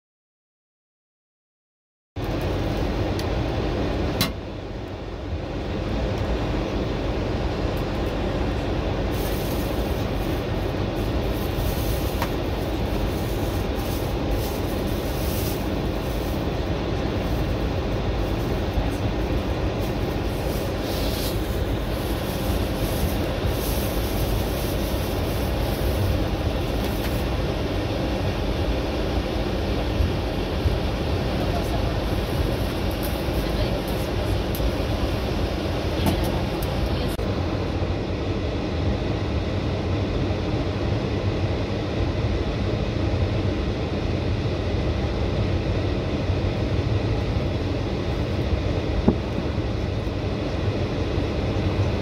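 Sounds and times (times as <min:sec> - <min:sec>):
train rumbling on rails: 0:02.2 - 0:38.4.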